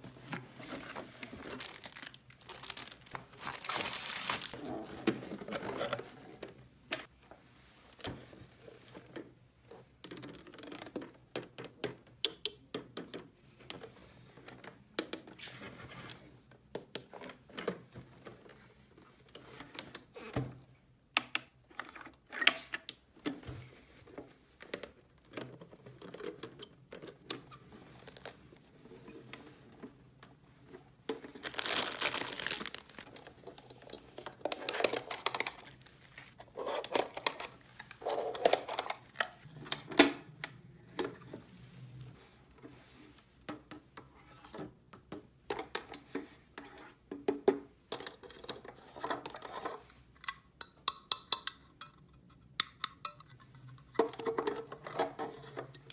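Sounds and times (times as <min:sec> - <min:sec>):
plastic packaging crinkling: 0:01.2 - 0:04.6, 0:31.3 - 0:33.3, 0:34.7 - 0:39.4.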